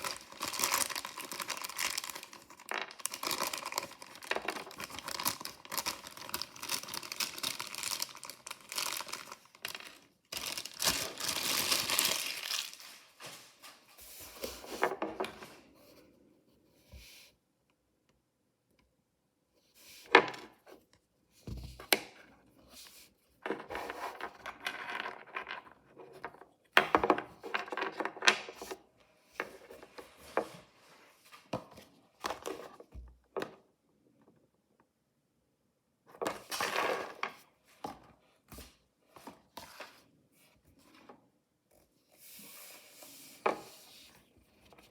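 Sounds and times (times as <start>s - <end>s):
packaging crinkling and tearing: 0.0s - 13.1s.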